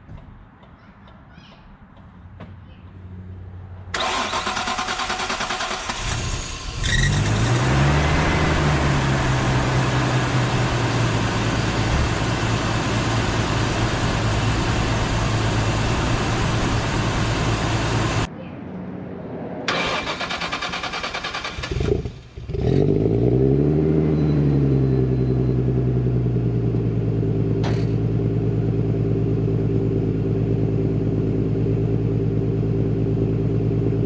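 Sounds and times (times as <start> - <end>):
car engine cranking on starter: 4.0 - 18.3, 19.7 - 22.5
car engine idling: 4.0 - 18.3, 24.6 - 34.0.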